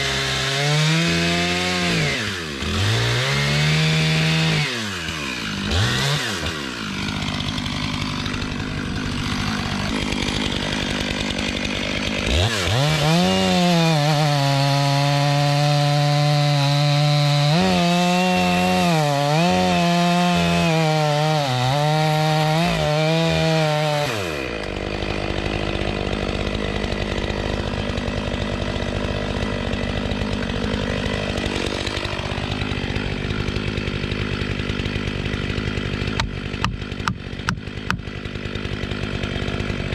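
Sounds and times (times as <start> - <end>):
chainsaw cutting a log: 0.0 - 39.9.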